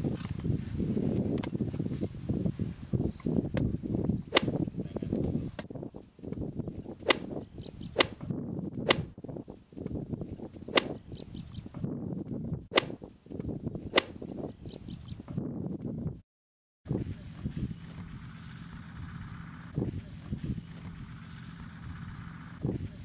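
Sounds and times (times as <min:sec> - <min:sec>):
sharp cracks: 0:04.4 - 0:04.6, 0:07.0 - 0:07.4, 0:08.0 - 0:08.2, 0:08.9 - 0:09.1, 0:10.7 - 0:11.0, 0:12.8 - 0:13.0, 0:14.0 - 0:14.2.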